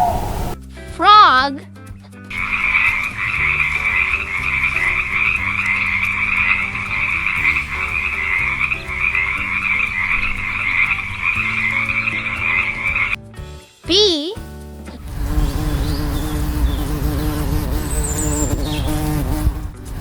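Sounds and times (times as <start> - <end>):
frogs croaking: 2.4 - 13.2.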